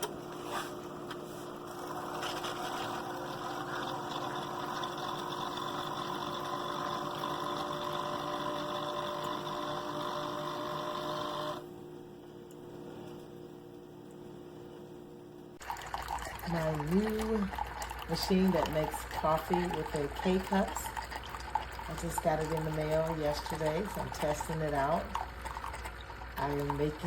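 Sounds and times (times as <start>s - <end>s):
coffee maker pump humming: 0.0s - 27.0s
faint hum: 11.3s - 27.0s.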